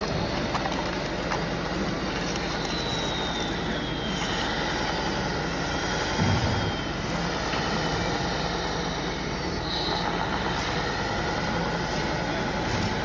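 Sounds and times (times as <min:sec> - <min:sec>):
faint high whine: 0:00.0 - 0:13.0
heavy vehicle engine running: 0:00.0 - 0:13.0.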